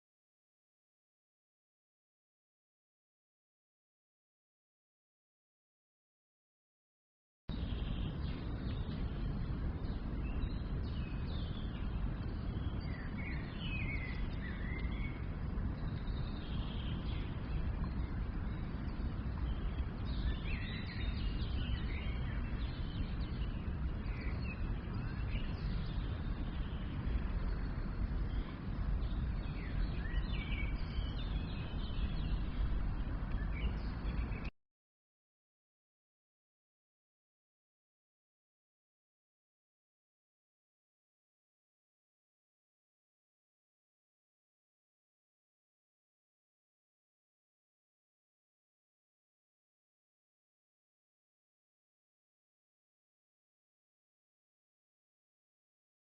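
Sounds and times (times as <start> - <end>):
birds chirping: 7.5 - 34.5
deep outdoor background noise: 7.5 - 34.5.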